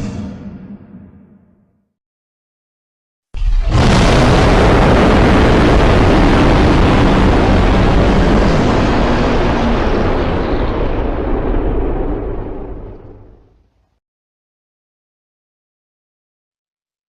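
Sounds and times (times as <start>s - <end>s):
monster roar: 3.4s - 10.4s.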